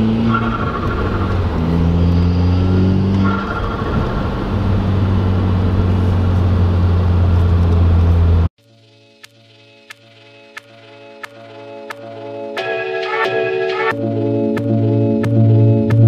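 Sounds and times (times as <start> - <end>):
car engine heard from inside: 0.0 - 8.5.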